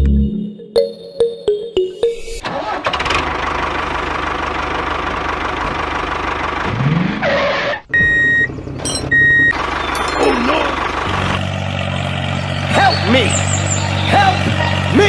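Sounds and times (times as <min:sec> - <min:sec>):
diesel tractor engine knocking: 0:02.5 - 0:06.6, 0:08.0 - 0:13.1
high electronic beep: 0:08.0 - 0:10.6.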